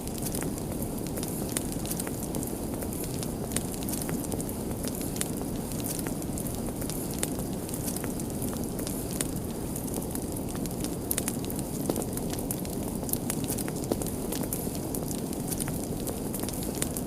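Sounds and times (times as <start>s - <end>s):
open fire crackling and popping: 0.0s - 17.0s.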